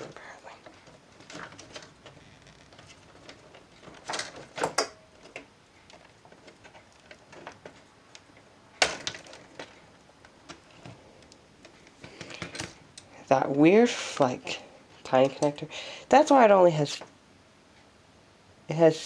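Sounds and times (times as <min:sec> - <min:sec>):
laptop parts clicking and knocking: 0:00.9 - 0:09.8, 0:11.9 - 0:12.8.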